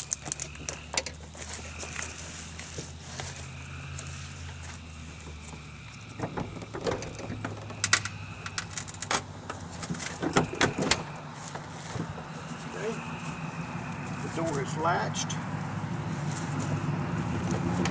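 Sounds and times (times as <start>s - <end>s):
steady low hum: 0.0s - 17.9s
car door metal clicks and knocks: 6.2s - 8.0s, 10.0s - 11.1s.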